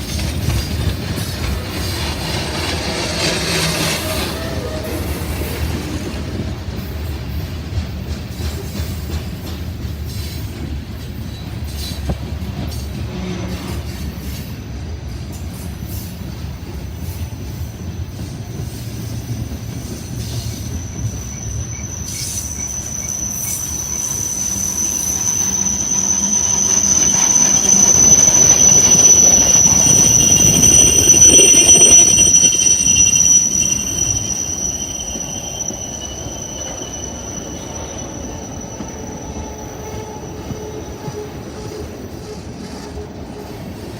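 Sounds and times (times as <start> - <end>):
freight train cars rumbling: 0.0 - 43.9
high-pitched metallic squeal: 20.2 - 43.8.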